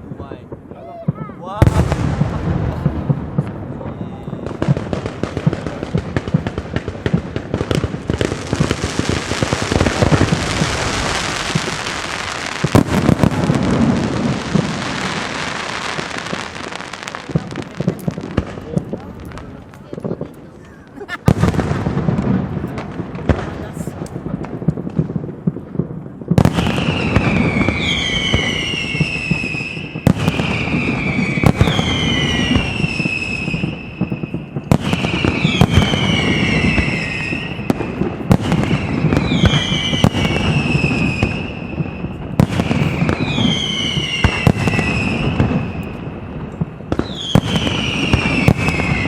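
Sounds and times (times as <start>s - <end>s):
firework bangs: 0.0s - 49.0s
fireworks crackling and popping: 0.0s - 49.0s
firework whistles gliding down: 26.4s - 46.1s, 46.9s - 49.0s.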